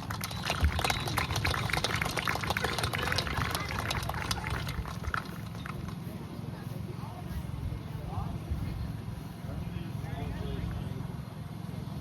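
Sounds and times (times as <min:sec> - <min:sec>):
crowd applauding: 0:00.0 - 0:06.2
low steady rumble: 0:00.0 - 0:12.0.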